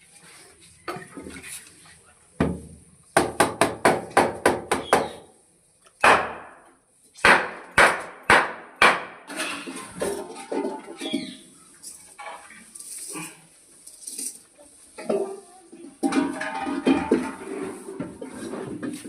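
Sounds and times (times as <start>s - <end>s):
hammer striking wood: 3.2s - 5.3s, 6.0s - 6.6s, 7.2s - 9.3s.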